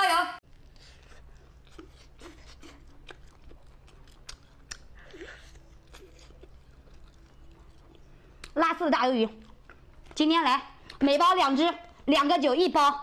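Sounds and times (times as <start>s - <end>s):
chewing and sucking: 0.5s - 11.0s
wet clicks and smacks: 3.0s - 4.9s, 8.4s - 11.1s.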